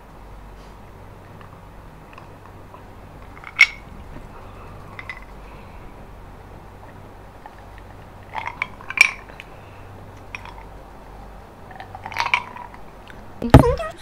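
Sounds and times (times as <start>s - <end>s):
loud thump: 13.5s - 13.9s.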